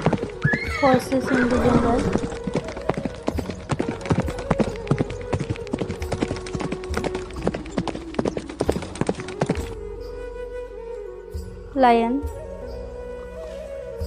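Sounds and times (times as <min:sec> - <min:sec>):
horse hooves clip-clopping: 0:00.0 - 0:09.8.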